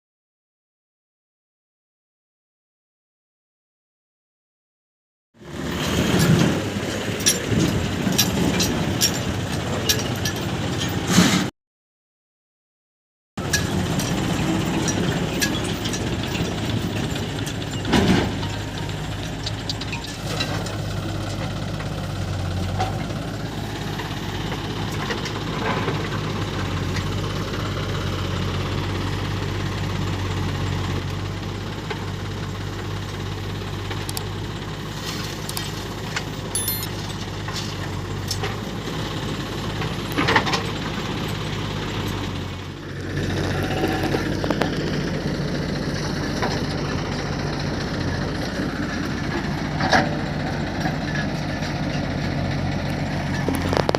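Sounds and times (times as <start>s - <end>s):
diesel engines running: 5.4s - 11.5s, 13.4s - 53.9s.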